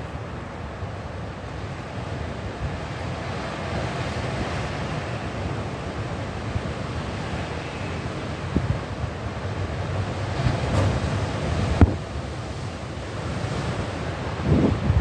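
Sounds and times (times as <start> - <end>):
rough sea rushing: 0.0 - 15.0
wind buffeting microphone: 0.7 - 15.0
low thumps from gusts: 2.4 - 15.0.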